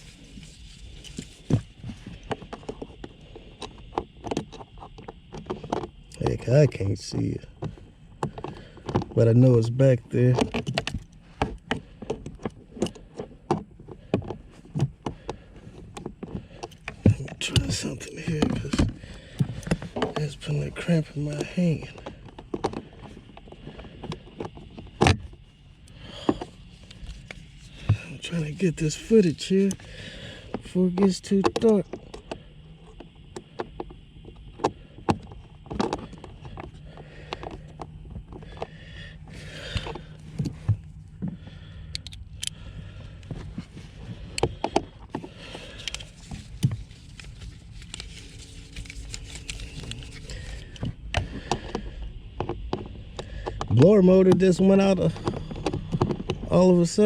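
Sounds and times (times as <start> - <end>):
hand tool and plastic parts clicking: 0.0 - 57.0
low steady hum: 0.0 - 57.0
plastic parts being handled: 33.0 - 54.4.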